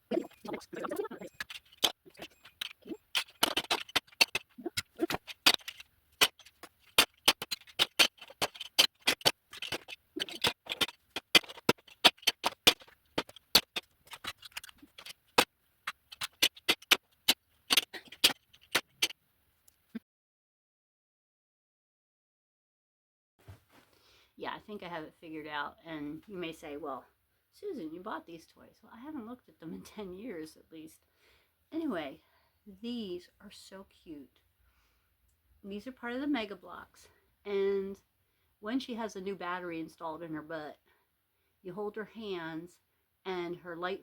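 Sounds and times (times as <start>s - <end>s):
plastic toy bricks clacking: 0.0s - 19.1s.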